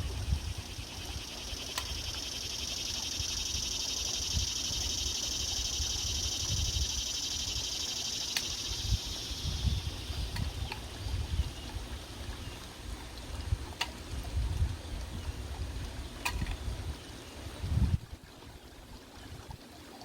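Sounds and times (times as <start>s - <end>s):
high insect buzz: 0.0s - 10.7s.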